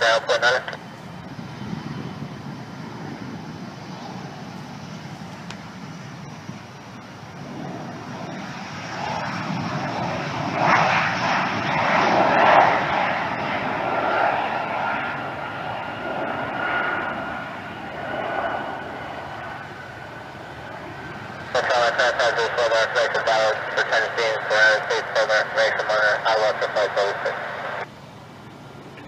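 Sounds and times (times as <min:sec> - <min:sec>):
jet airliner passing: 0:00.0 - 0:29.0
steady high whine: 0:00.0 - 0:29.0.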